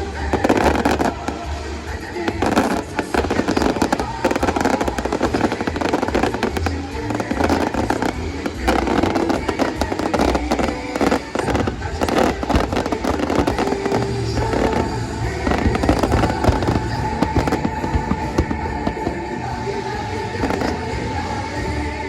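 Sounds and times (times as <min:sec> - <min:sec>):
fireworks bursting and crackling: 0:00.0 - 0:22.0
music playing: 0:00.0 - 0:22.0.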